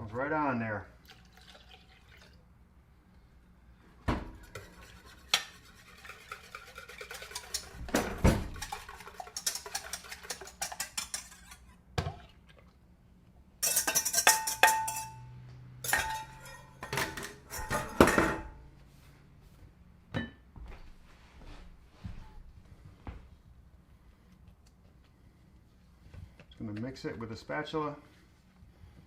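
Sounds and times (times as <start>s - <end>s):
utensils clinking against mixing bowl: 4.4s - 11.7s, 13.6s - 15.2s, 15.8s - 18.5s.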